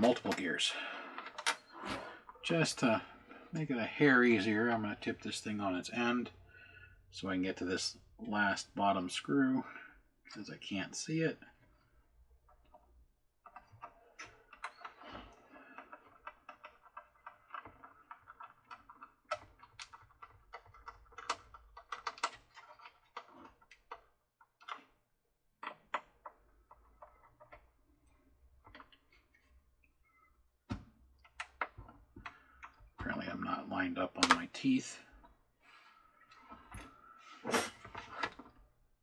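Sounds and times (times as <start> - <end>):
plastic parts clicking and rattling: 0.0 - 3.0, 12.4 - 30.0, 30.6 - 35.4.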